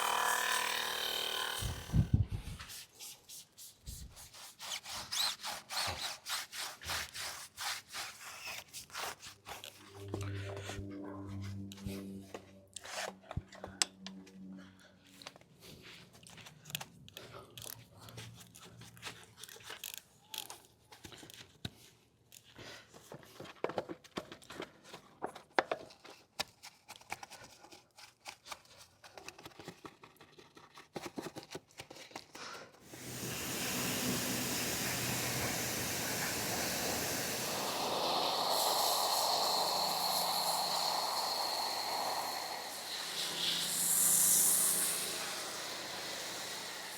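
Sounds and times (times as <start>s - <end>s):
scrubbing and rubbing: 2.7s - 10.9s
spraying hiss: 32.9s - 46.9s.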